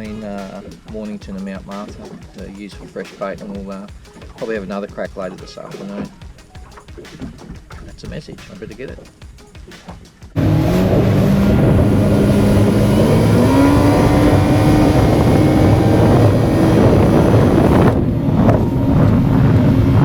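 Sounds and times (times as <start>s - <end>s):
boat engine running: 0.0s - 9.2s, 10.3s - 20.0s
wind and water rushing: 10.1s - 20.0s.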